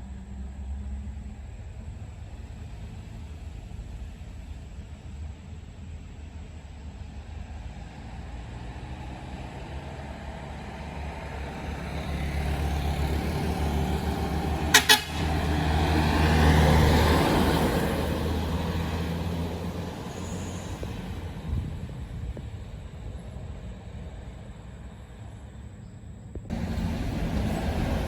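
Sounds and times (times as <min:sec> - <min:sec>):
bus passing on wet road: 0:00.0 - 0:25.7, 0:26.5 - 0:28.0
bus horn blasts: 0:14.5 - 0:15.8.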